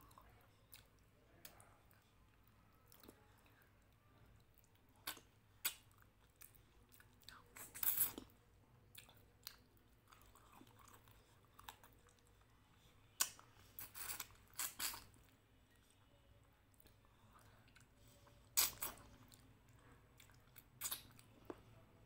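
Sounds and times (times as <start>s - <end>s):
person chewing: 0.0s - 8.3s, 8.9s - 16.0s, 16.7s - 21.8s
wet mouth smacks and clicks: 5.0s - 5.9s, 20.8s - 21.2s.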